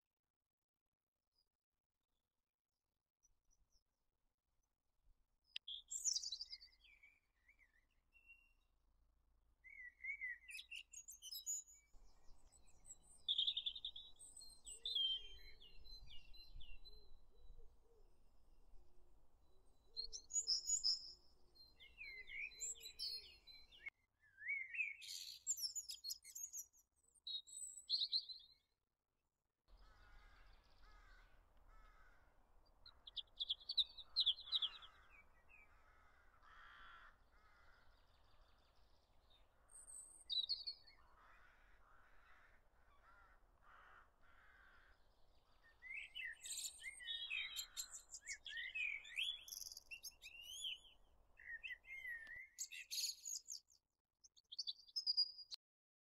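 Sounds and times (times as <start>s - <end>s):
birds chirping and singing: 32.9s - 53.6s.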